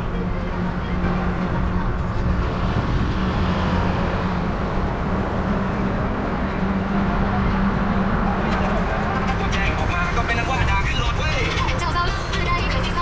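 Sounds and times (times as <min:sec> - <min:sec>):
road and traffic noise: 0:00.0 - 0:13.0.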